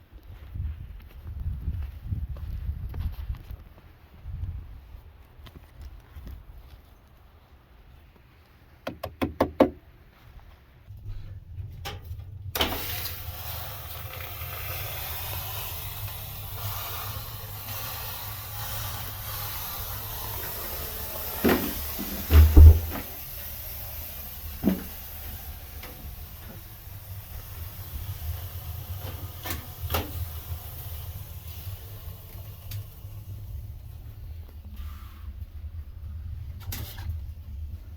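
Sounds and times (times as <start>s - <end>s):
knocks: 8.8s - 9.8s, 21.4s - 23.1s
steam hissing off sauna stones: 12.6s - 37.2s.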